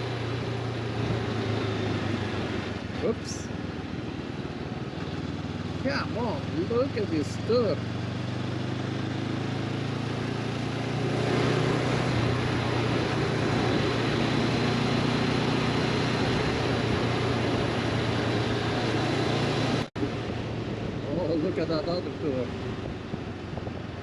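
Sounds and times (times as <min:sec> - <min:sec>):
motorcycle engine running: 0:00.0 - 0:24.0
wind noise: 0:20.0 - 0:24.0.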